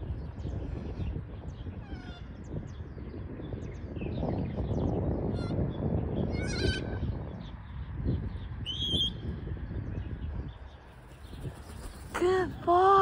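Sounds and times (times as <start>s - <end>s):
wind rumbling on microphone: 0.0s - 13.0s
whistled bird calls: 8.6s - 9.2s.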